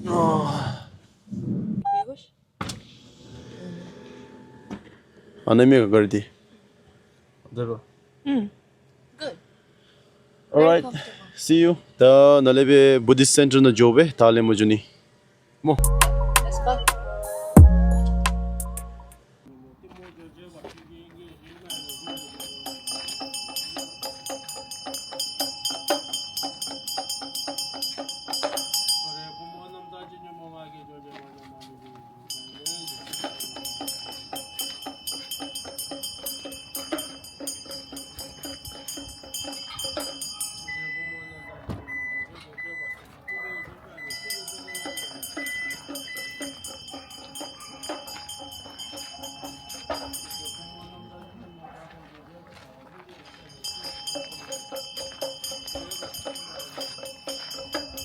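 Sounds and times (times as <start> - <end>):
bell struck rapidly: 21.7 - 31.2, 32.0 - 41.4, 44.0 - 51.8, 53.3 - 58.0.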